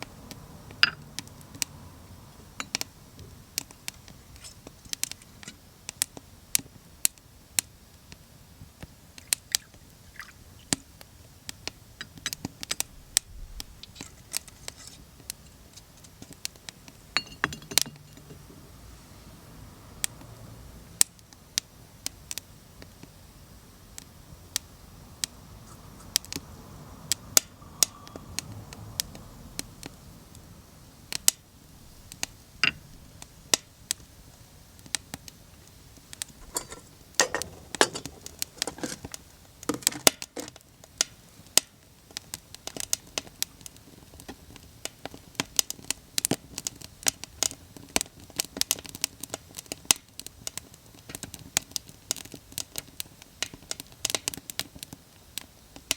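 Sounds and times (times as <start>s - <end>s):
wood fire crackling: 0.0s - 55.9s
fire pops and snaps: 2.6s - 18.5s, 31.1s - 31.4s, 32.1s - 55.9s.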